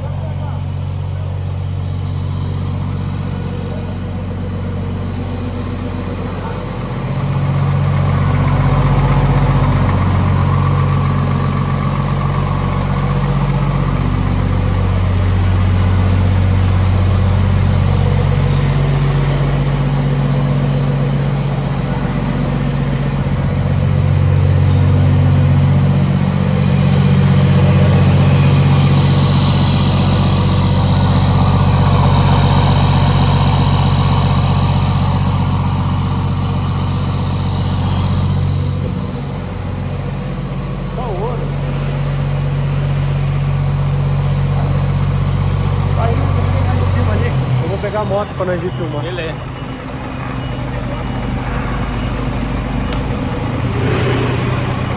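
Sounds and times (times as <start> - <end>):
diesel truck engine exhaust: 0.0 - 54.9.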